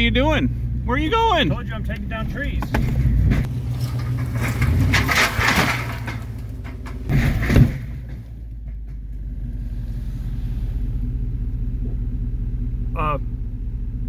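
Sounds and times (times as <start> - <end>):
truck engine humming: 0.0 - 14.0.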